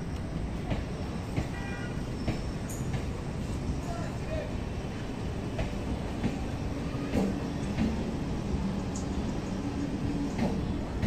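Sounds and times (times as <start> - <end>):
electric train rumble and hum: 0.0 - 11.0
wheels clacking on track: 0.1 - 4.0, 5.4 - 8.2, 10.2 - 11.0.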